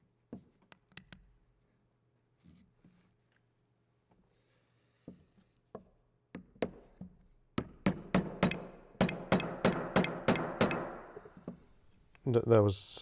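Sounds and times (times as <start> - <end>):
hammer tapping metal: 7.9 - 11.2.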